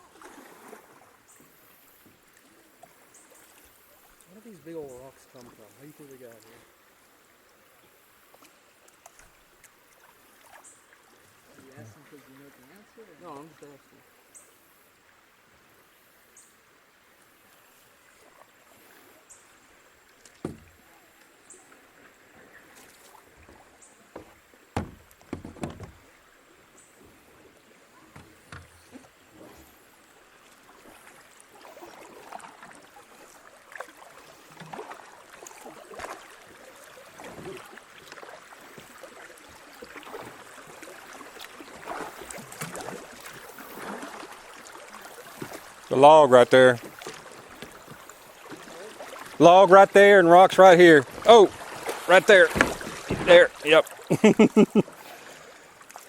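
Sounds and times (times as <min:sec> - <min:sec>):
kayak paddles splashing: 0:00.0 - 0:56.0
sharp knocks: 0:20.4 - 0:20.8, 0:24.2 - 0:26.0, 0:52.4 - 0:53.6.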